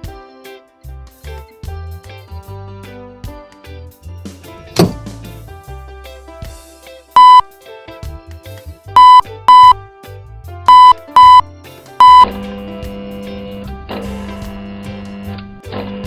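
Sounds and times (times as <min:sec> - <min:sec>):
background music: 0:00.0 - 0:16.0
short electronic beeps: 0:07.2 - 0:07.4, 0:09.0 - 0:09.8, 0:10.7 - 0:11.4, 0:12.0 - 0:12.4.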